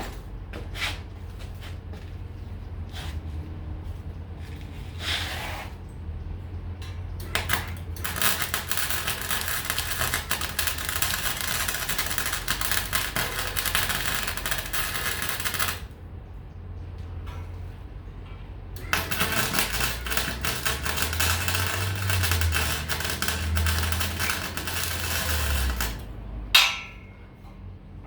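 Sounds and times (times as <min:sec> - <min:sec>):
welding arc crackling: 0:07.2 - 0:16.0, 0:18.8 - 0:26.7.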